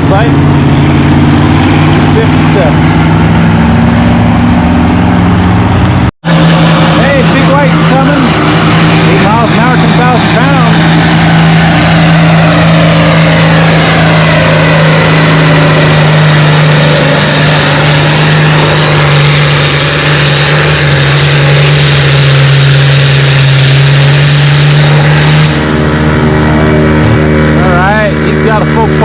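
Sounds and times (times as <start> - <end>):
tractor engine under full load: 0.0 - 29.0.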